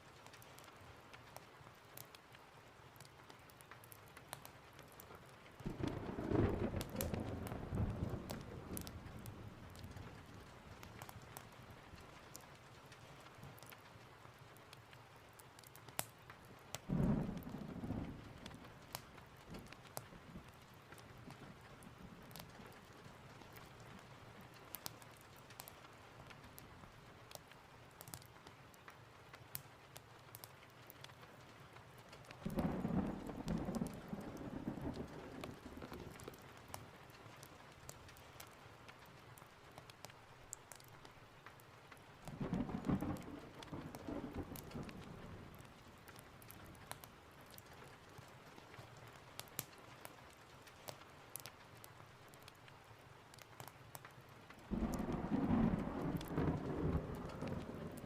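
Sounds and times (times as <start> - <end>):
steady rain: 0.0 - 58.0
thunder rumbling: 5.6 - 11.1, 16.9 - 18.9, 32.4 - 36.5, 42.2 - 46.5, 54.7 - 58.0.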